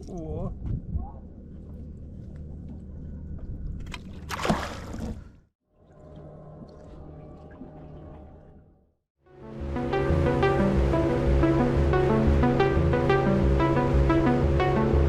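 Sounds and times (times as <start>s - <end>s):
water sloshing against boat: 1.5s - 8.7s
water splash: 3.9s - 5.3s.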